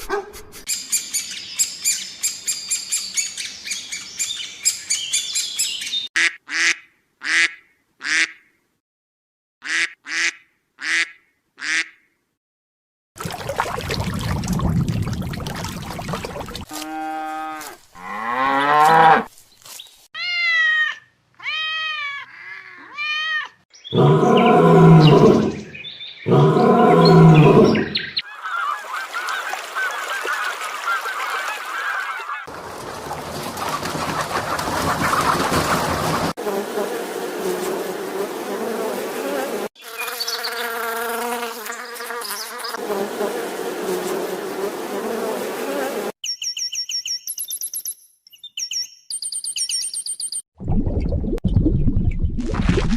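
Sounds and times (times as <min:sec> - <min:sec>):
rustling noise: 0:19.3 - 0:20.1
animal and bird calls: 0:20.9 - 0:32.5, 0:39.8 - 0:40.9, 0:41.6 - 0:42.8.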